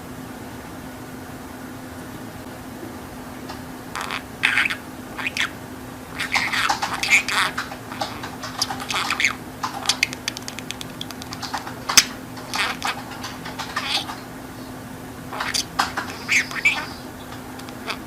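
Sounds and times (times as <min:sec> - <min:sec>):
steady low hum: 0:00.0 - 0:18.0
budgerigar chattering: 0:03.9 - 0:18.0.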